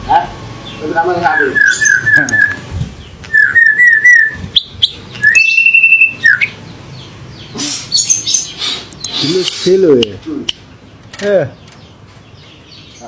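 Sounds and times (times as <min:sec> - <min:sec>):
harsh rasping bird calls: 0:00.0 - 0:13.0
bird whistling and chirping: 0:01.2 - 0:02.7, 0:03.3 - 0:06.6, 0:07.6 - 0:09.8.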